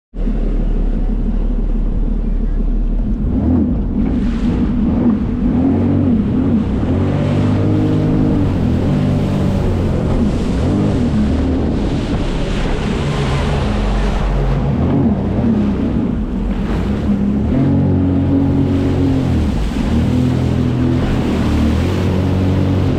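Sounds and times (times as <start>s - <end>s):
jet ski engine revving: 0.2s - 22.9s
water rushing past: 0.2s - 22.9s
wind buffeting microphone: 0.8s - 22.9s.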